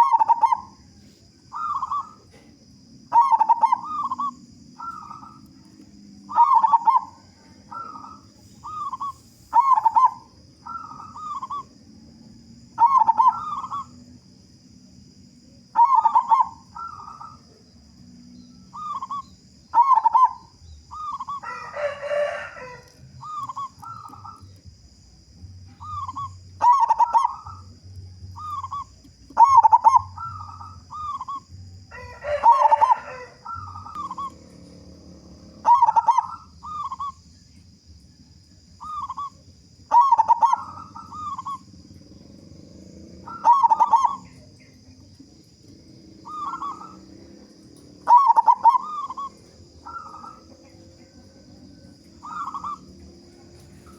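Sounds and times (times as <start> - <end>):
dove cooing: 0.0 - 14.2, 15.0 - 37.4, 38.8 - 53.9.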